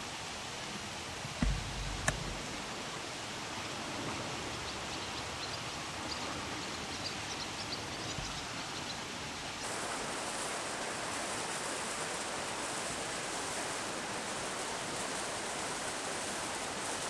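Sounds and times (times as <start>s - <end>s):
river water rushing: 0.0s - 6.9s, 8.5s - 17.0s
low bump: 1.3s - 2.8s
sharp click: 1.4s - 2.6s.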